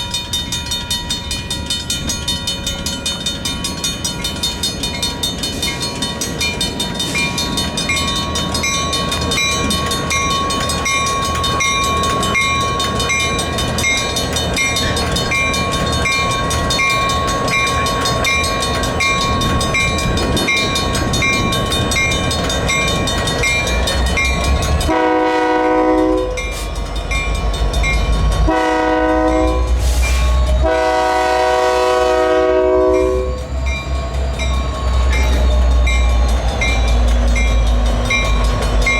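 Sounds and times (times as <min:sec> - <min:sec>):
locomotive rumble: 0:00.0 - 0:38.9
railroad crossing bell dinging: 0:00.0 - 0:38.9
locomotive horn blasts: 0:24.9 - 0:26.6, 0:28.5 - 0:33.4.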